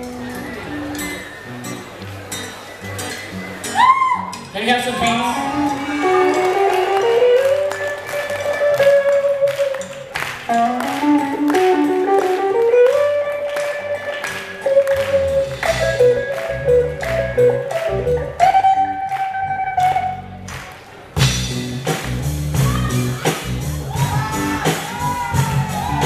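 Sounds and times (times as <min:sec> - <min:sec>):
lead guitar bending notes: 0:00.0 - 0:21.7
bass guitar: 0:00.0 - 0:26.0.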